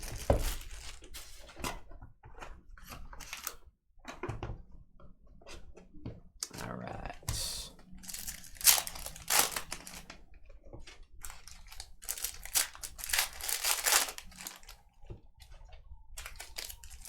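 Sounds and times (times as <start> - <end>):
card wrappers crinkling: 0.0 - 1.6, 3.2 - 3.5, 7.4 - 10.2, 11.2 - 14.8, 16.2 - 17.0.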